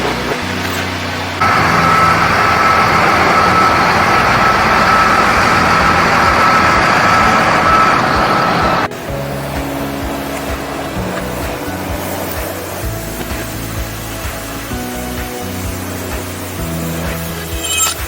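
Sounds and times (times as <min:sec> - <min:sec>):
machine noise with high whine: 0:00.0 - 0:18.0.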